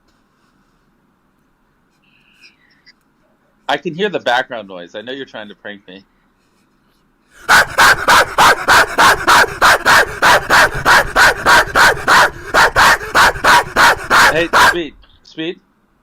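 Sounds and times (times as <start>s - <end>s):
dog barking rapidly: 7.4s - 15.0s.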